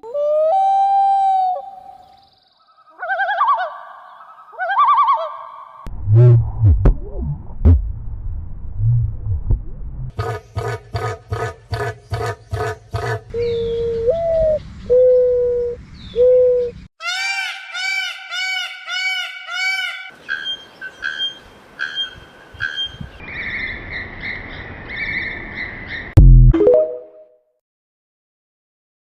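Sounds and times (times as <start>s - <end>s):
birds calling: 10.2s - 26.1s.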